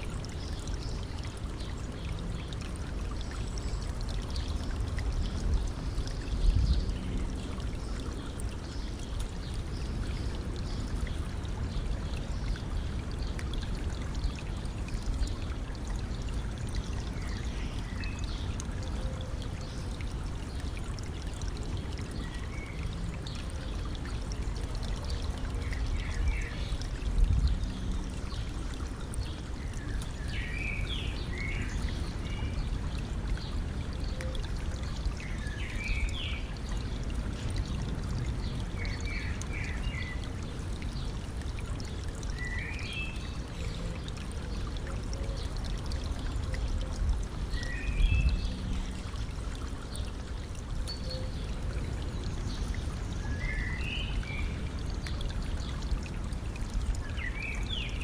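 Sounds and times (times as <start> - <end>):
stream water flowing and trickling: 0.0 - 58.0
songbird singing: 50.9 - 55.2.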